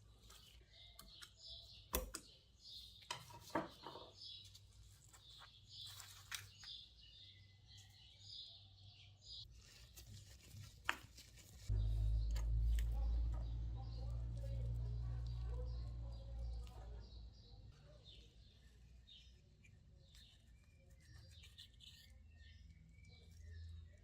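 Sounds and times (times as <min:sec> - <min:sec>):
rustles of small objects: 0:03.2 - 0:06.9.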